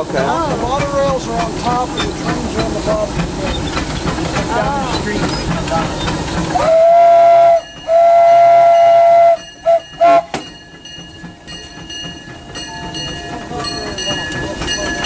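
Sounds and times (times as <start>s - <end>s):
locomotive engine running: 0.0s - 15.0s
steam locomotive whistle: 6.5s - 10.4s.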